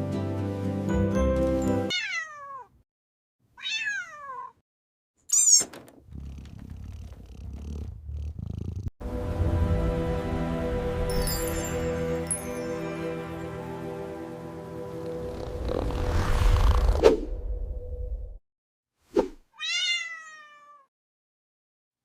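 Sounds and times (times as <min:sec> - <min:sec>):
background music: 0:00.0 - 0:01.9, 0:09.0 - 0:15.9
cat high-pitched cry: 0:01.9 - 0:02.7, 0:03.6 - 0:04.6, 0:19.6 - 0:20.9
cat meowing: 0:01.9 - 0:02.7, 0:03.6 - 0:04.6, 0:19.6 - 0:20.9.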